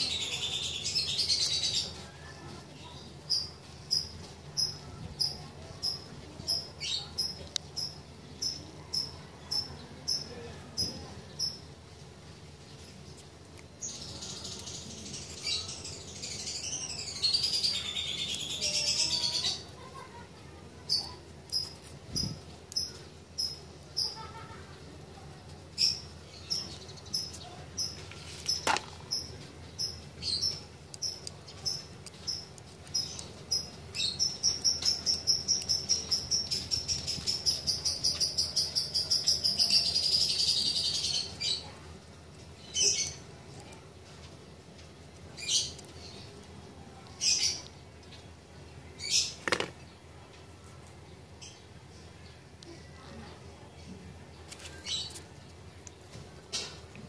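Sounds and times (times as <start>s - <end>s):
bird singing: 13.8s - 19.7s.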